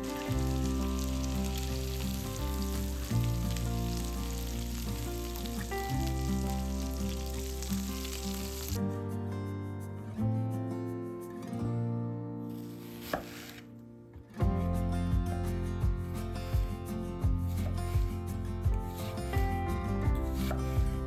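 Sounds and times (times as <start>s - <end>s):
food sizzling in a pan: 0.0s - 8.8s
background music: 0.0s - 21.0s.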